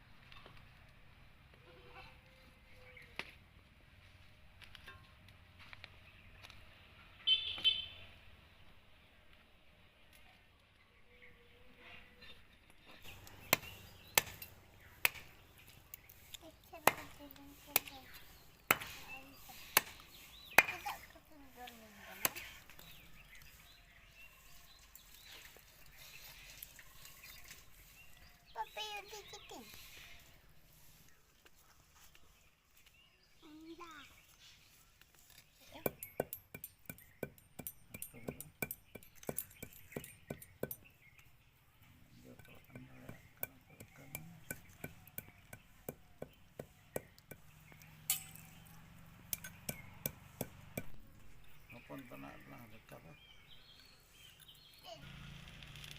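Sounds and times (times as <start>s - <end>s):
faint bird chirps: 7.1s - 8.2s, 15.6s - 36.3s
sharp chop or knock: 15.0s - 15.3s
utensil clinking on cookware: 48.1s - 48.5s.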